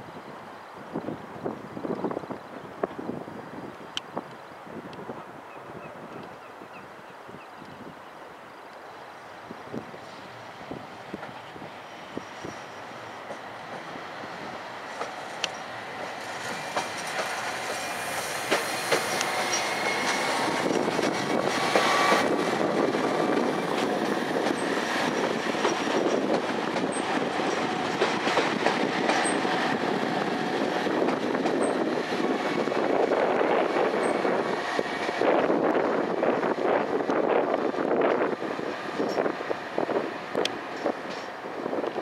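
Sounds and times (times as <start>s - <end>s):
diesel train passing: 8.7s - 42.0s
wheels clicking over rail joints: 14.9s - 33.2s.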